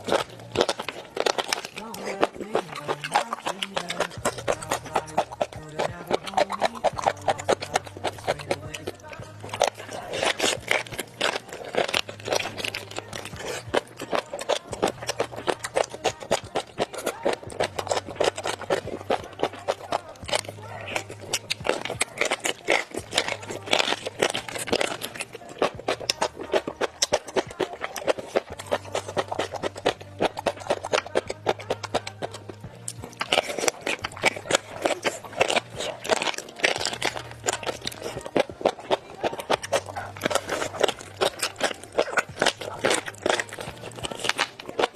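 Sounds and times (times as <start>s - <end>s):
low steady hum: 0.0s - 22.4s
chewing crunchy food: 0.0s - 44.9s.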